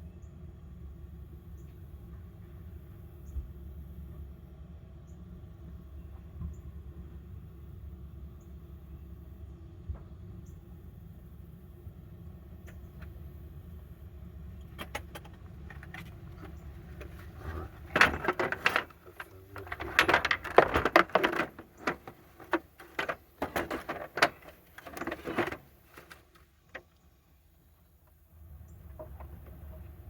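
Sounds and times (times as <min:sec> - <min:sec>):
metal tools clinking: 0:14.8 - 0:26.4.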